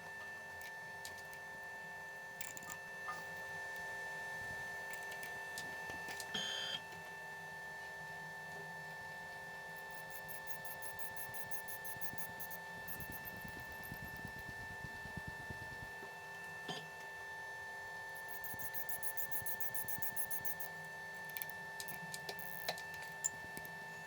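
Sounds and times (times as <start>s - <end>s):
milling machine motor hum: 9.8s - 15.9s, 18.2s - 20.7s
rapid light ticking: 18.3s - 20.7s.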